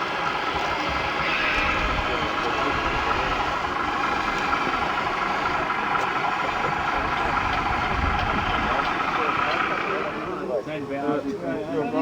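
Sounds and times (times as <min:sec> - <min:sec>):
engine running with whine: 0:00.0 - 0:10.8.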